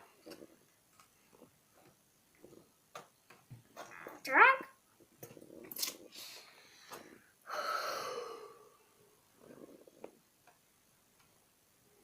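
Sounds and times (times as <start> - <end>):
long breathy exhale: 6.2 - 8.8.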